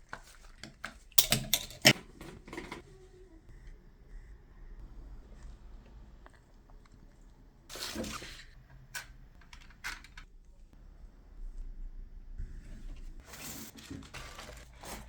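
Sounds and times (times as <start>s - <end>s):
rustling scrape: 12.4s - 15.0s.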